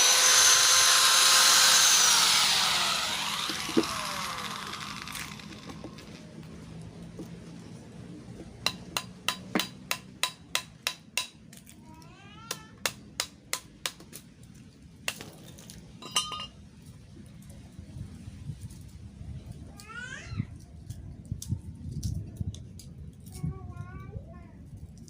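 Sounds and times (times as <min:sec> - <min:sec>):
hammer striking steel: 0:08.6 - 0:11.4.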